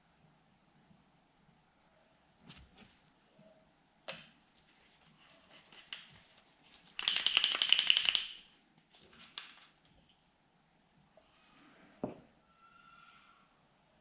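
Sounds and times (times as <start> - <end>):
paint pen mixing ball rattling: 5.5 - 9.9.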